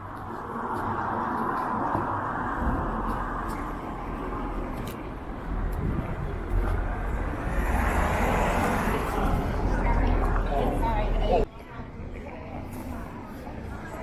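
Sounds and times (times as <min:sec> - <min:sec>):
vehicle tyre noise: 0:00.6 - 0:10.8.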